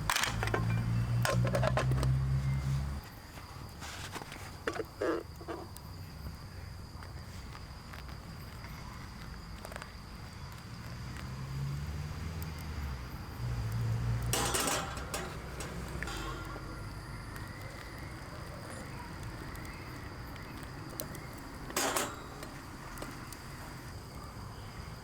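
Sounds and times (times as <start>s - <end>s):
small clicks and knocks: 0.0s - 5.9s, 12.4s - 24.2s
high-pitched insect trill: 0.3s - 25.0s.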